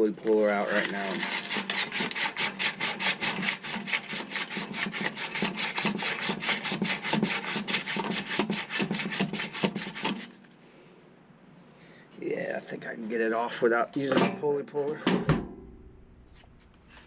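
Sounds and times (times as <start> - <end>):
hand sanding metal shaft: 0.3 - 10.4.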